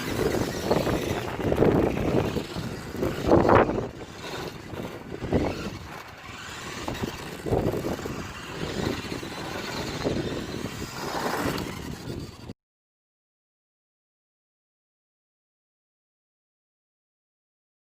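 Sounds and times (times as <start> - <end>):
small electric motor whirring: 0.0 - 12.5
tyres on the ground: 0.0 - 12.5.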